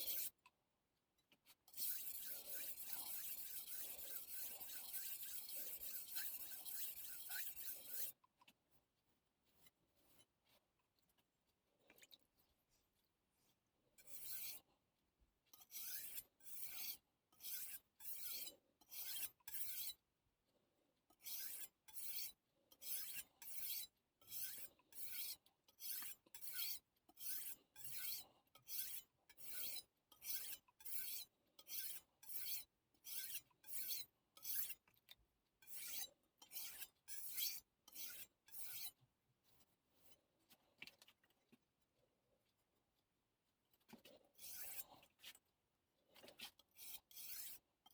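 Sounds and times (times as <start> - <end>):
knife scraping on whetstone: 1.7 - 8.2, 14.1 - 14.6, 15.7 - 20.0, 21.3 - 34.8, 35.6 - 39.0, 44.4 - 45.4, 46.2 - 47.6.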